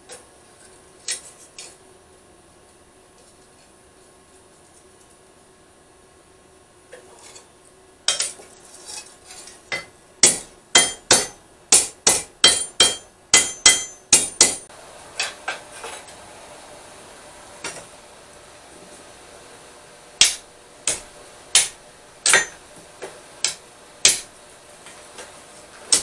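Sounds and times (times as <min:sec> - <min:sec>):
hammer striking steel on anvil: 0:09.7 - 0:15.6, 0:20.2 - 0:22.7, 0:23.4 - 0:24.4.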